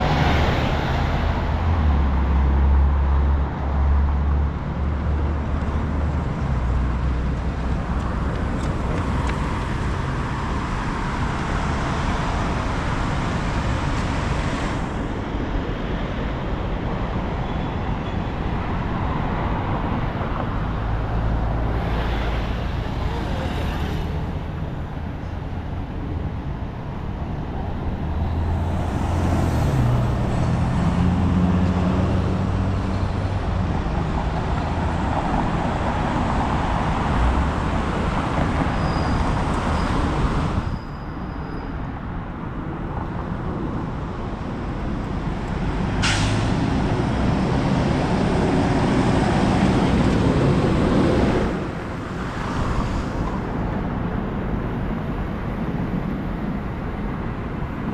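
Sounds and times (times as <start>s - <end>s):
traffic rumble: 0.0s - 57.9s
air brakes hissing: 46.0s - 46.6s.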